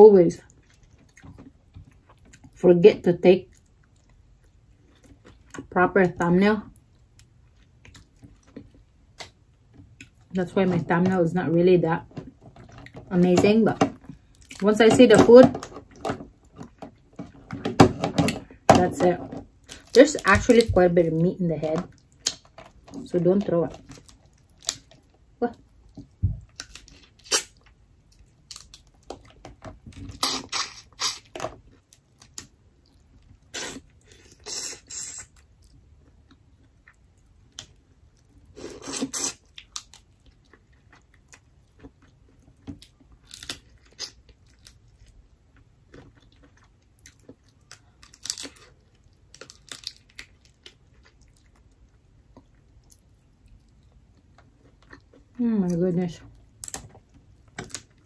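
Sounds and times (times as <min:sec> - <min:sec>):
chewing lobster meat: 0:00.4 - 0:02.6, 0:03.4 - 0:05.7, 0:06.7 - 0:10.4, 0:23.7 - 0:55.4
shell crunching and cracking: 0:21.8 - 0:23.0, 0:23.7 - 0:25.3, 0:25.9 - 0:33.4, 0:36.0 - 0:53.1, 0:56.5 - 0:58.0.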